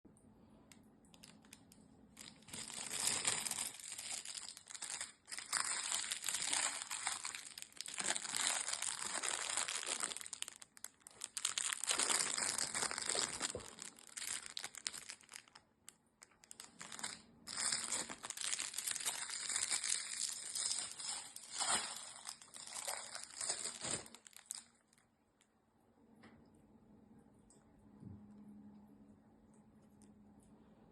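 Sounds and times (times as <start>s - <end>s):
crinkly cat toy rustling: 1.1s - 15.6s, 16.2s - 25.1s.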